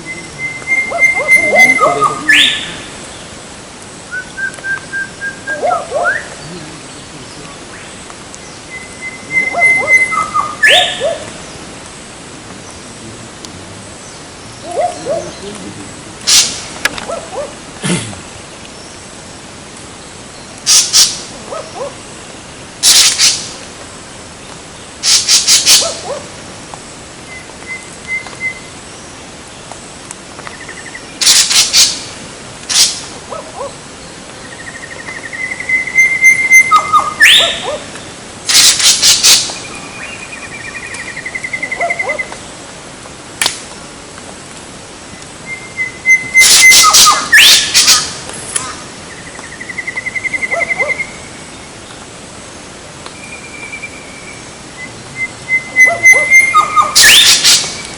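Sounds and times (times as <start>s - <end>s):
harsh bird calls: 0.0s - 3.6s, 4.8s - 19.2s, 24.8s - 26.2s, 30.5s - 42.6s, 45.4s - 51.8s, 53.2s - 57.9s
thin high bird trills: 45.8s - 51.2s.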